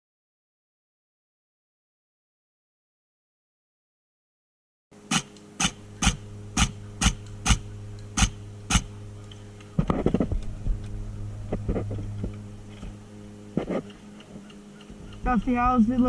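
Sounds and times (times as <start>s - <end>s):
low electrical hum: 4.9s - 16.0s
sharp clicks: 5.1s - 12.9s, 13.6s - 15.5s
rustling and clatter: 9.7s - 13.0s.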